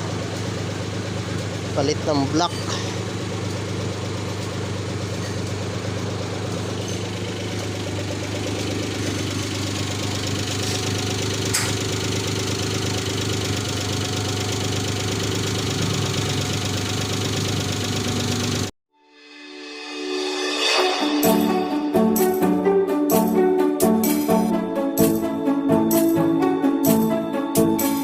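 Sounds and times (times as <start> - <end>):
engine idling: 0.0 - 18.7.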